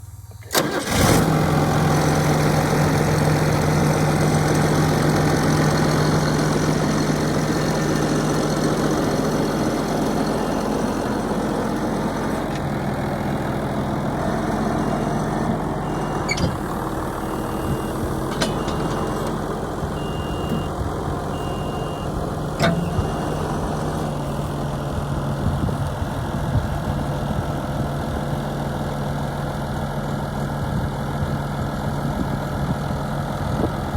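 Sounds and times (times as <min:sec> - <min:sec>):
tractor diesel engine idling: 0:00.0 - 0:33.9
faint high beep: 0:20.0 - 0:23.5.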